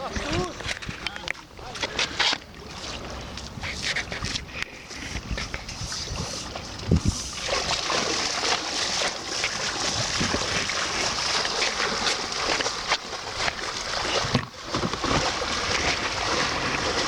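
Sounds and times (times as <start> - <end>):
wind gusts buffeting microphone: 3.5 - 7.8, 9.8 - 12.4
surf washing: 5.7 - 17.0.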